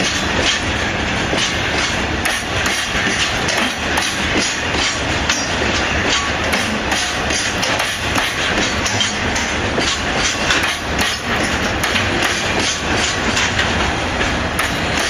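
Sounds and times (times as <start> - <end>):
freight train wheels clattering: 0.0 - 15.0
wheels clacking over rail joints: 0.0 - 15.0.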